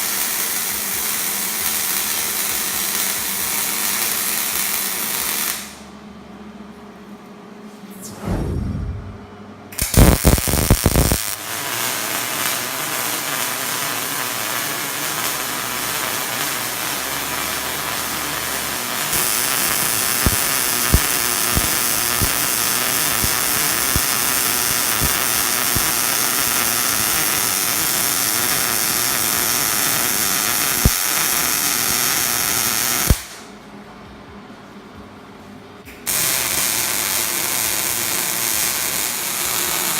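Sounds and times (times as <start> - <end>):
welding arc crackling: 0.0 - 5.8, 9.8 - 33.5, 36.1 - 39.9
spatter pops: 9.8 - 11.3.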